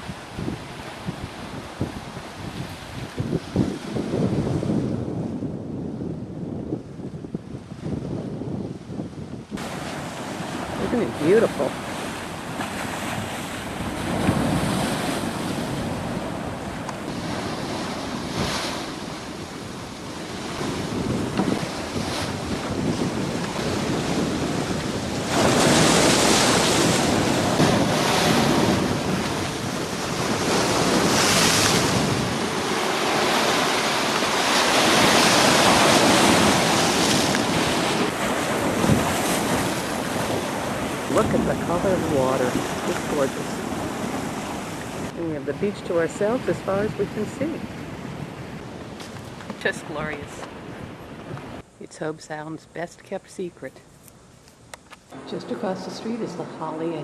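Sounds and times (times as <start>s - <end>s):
wind buffeting microphone: 0.0s - 51.6s
surf on rocky shoreline: 0.0s - 51.7s.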